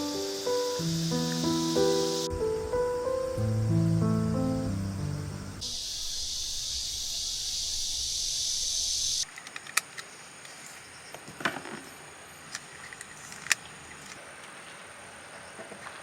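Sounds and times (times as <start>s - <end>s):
loud high-pitched hiss: 0.0s - 9.3s.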